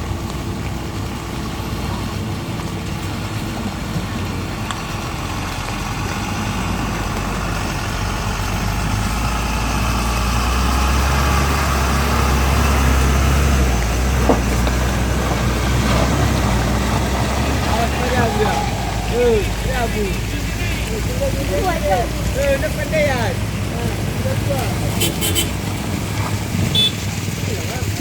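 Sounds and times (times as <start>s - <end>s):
heavy vehicle engine passing: 0.0s - 28.0s.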